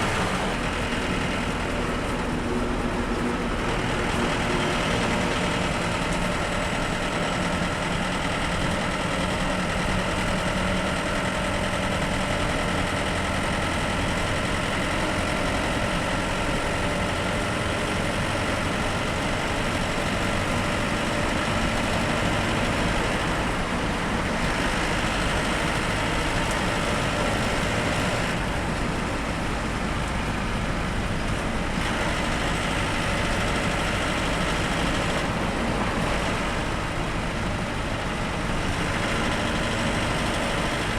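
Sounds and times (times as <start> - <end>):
bus engine droning: 0.0 - 40.9
road and cabin noise: 0.0 - 40.9.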